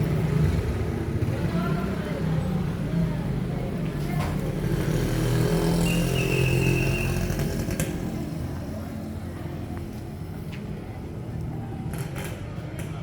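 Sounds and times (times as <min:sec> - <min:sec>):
vehicle engine passing by: 0:00.0 - 0:09.2.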